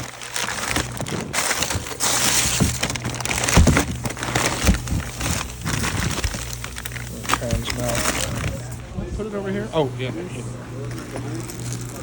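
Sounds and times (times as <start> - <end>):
packaging rustling and crinkling: 0.0 - 8.8, 10.8 - 12.0
steady low hum: 0.0 - 12.0
dull knocks: 1.0 - 6.8.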